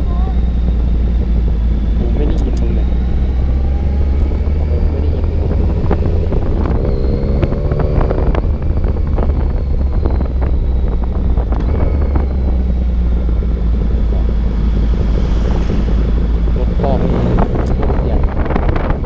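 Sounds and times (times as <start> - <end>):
motorcycle engine running: 0.0 - 19.0
wind on microphone: 3.3 - 13.5, 14.7 - 19.0.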